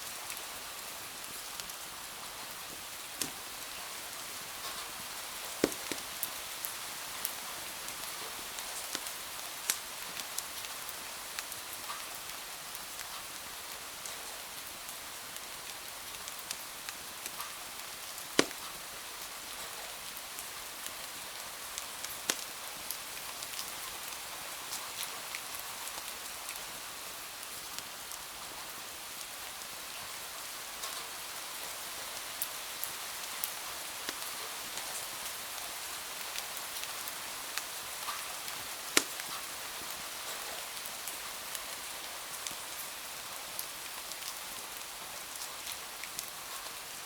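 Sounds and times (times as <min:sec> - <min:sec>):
steady rain hiss: 0:00.0 - 0:47.0
wood fire crackling and popping: 0:02.8 - 0:03.8, 0:04.6 - 0:06.4, 0:07.2 - 0:10.4, 0:18.2 - 0:18.8, 0:22.0 - 0:22.9, 0:32.8 - 0:35.2, 0:37.6 - 0:40.0.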